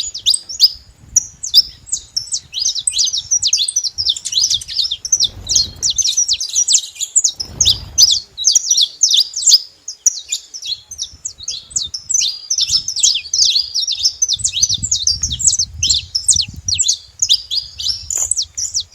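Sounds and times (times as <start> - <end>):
finch singing high chirps: 0.0 - 18.9.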